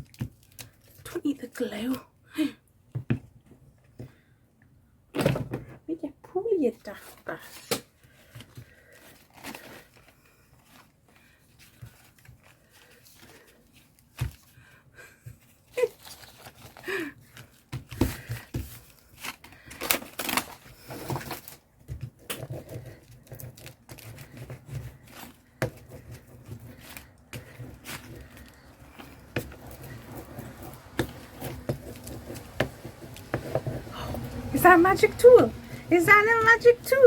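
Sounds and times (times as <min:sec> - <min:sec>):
paper rustling and tearing: 0:07.0 - 0:14.5, 0:15.7 - 0:21.7, 0:22.4 - 0:34.3.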